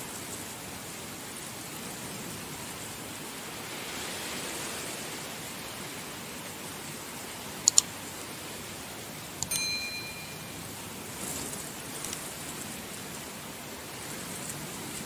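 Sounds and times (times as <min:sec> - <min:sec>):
heavy rain hissing: 0:00.0 - 0:09.4, 0:10.5 - 0:15.0
sharp clicks: 0:07.7 - 0:07.9
short metallic ding: 0:09.4 - 0:10.8.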